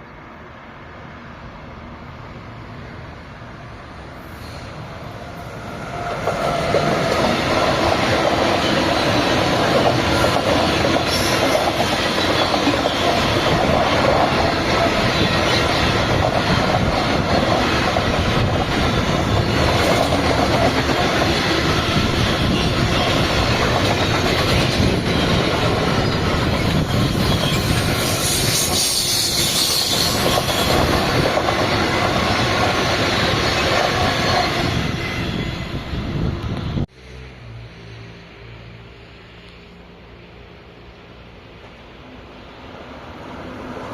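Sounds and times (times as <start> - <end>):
train rumbling and clattering: 2.0 - 38.6
high-pitched train screech: 4.2 - 16.3, 21.3 - 36.3.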